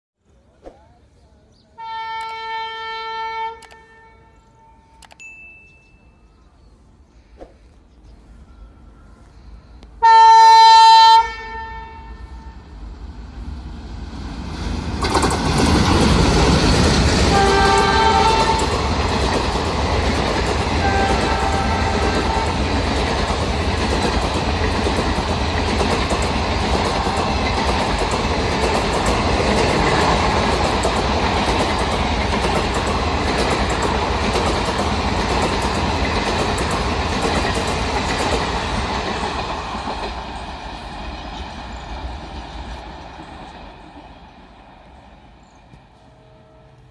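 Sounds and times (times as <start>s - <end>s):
locomotive engine and rail noise: 0.2s - 46.9s
locomotive horn: 1.8s - 5.0s, 10.0s - 12.8s, 17.3s - 18.8s, 20.8s - 22.6s, 46.0s - 46.9s.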